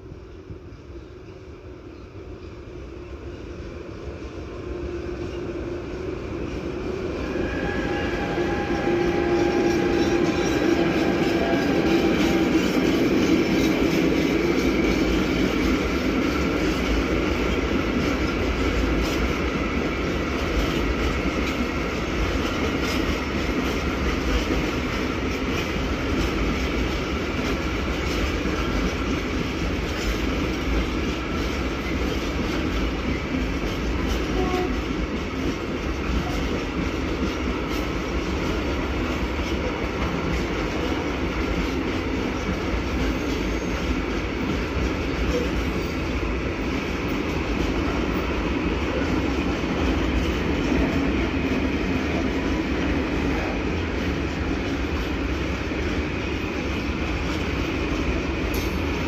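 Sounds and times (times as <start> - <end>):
train wheels clicking and rumbling: 0.0 - 59.0.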